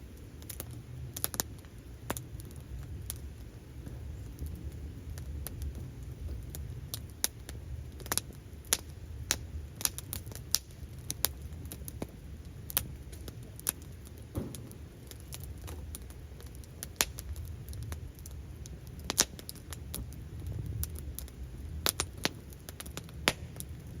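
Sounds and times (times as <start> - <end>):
campfire crackling: 0.0 - 24.0
low rumble of burning fire: 0.0 - 24.0.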